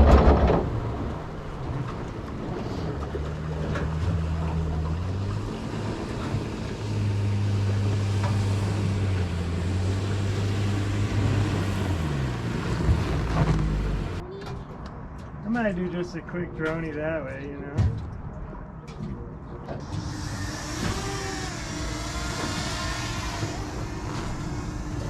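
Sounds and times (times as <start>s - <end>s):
rushing water: 0.0s - 14.2s
boat engine running: 0.0s - 14.7s, 16.4s - 25.0s
wind: 0.0s - 25.0s.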